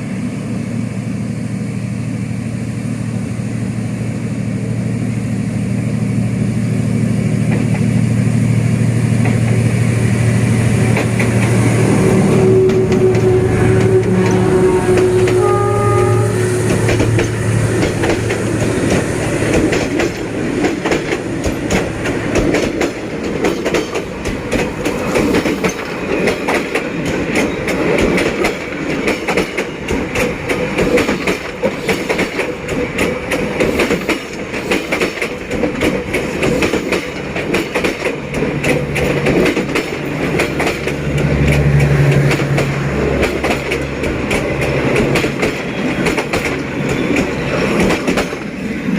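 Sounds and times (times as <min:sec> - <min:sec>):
locomotive engine drone: 0:00.0 - 0:26.2, 0:37.1 - 0:48.9.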